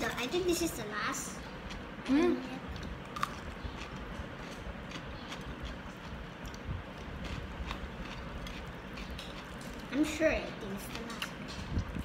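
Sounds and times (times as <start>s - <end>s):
low background rumble: 0.0s - 12.0s
person chewing cucumber: 1.4s - 2.1s, 2.7s - 10.0s.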